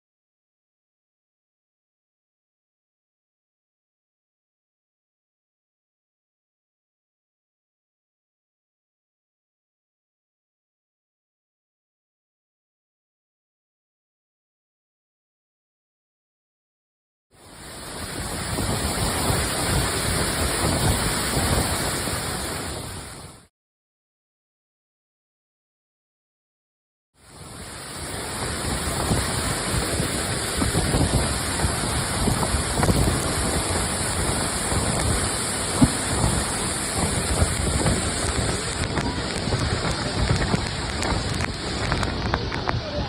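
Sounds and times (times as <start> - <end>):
waterfall rushing: 17.4 - 23.5, 27.2 - 43.0.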